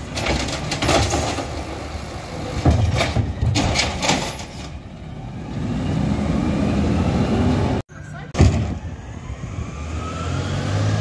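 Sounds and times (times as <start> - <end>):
metal clanks: 2.6 - 4.8.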